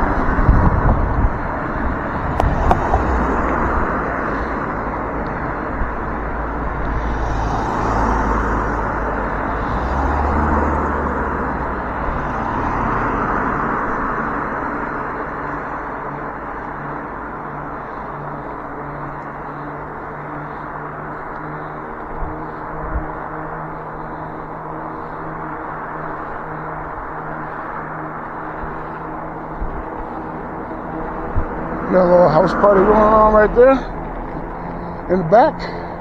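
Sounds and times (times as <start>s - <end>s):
vehicles passing: 0.0s - 36.0s
wind rumble on microphone: 0.0s - 36.0s
tyres hissing: 16.4s - 36.0s.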